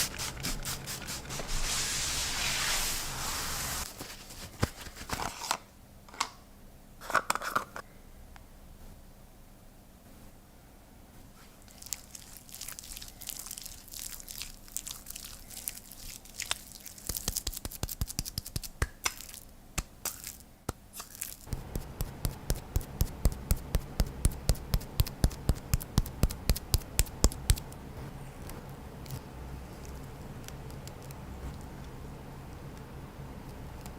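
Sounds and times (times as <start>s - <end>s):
hiss: 0.0s - 3.9s
soapy hands rubbing: 0.0s - 4.0s, 11.5s - 19.5s
wet rhythmic slapping: 15.8s - 27.7s.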